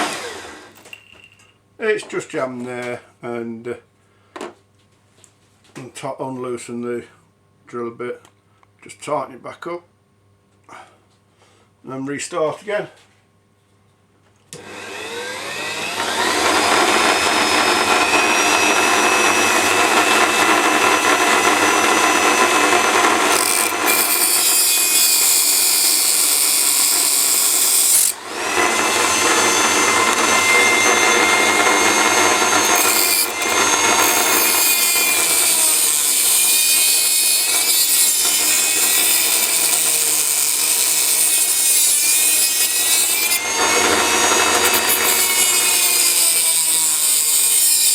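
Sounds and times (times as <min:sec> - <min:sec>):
rotary tool grinding metal: 0:14.6 - 0:47.9.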